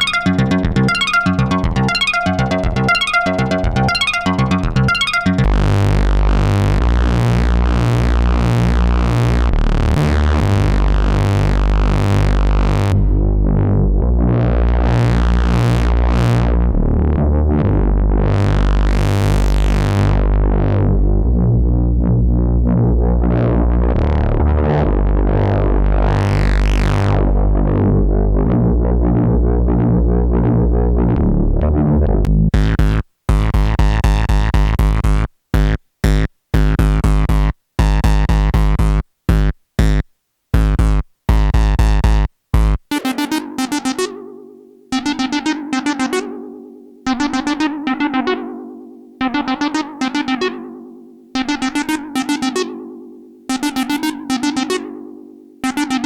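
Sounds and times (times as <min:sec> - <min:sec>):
analog synthesizer notes: 0:00.0 - 0:35.2, 0:42.9 - 0:56.0.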